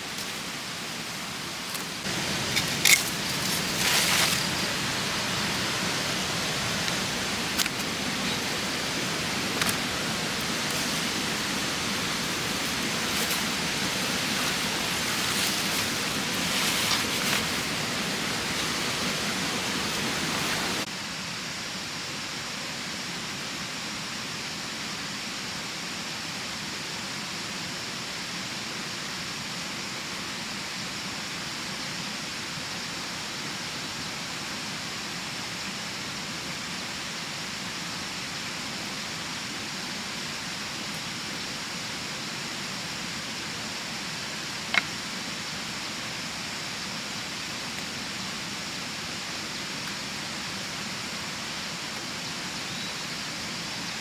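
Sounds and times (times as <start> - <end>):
water rushing: 0.0 - 20.9.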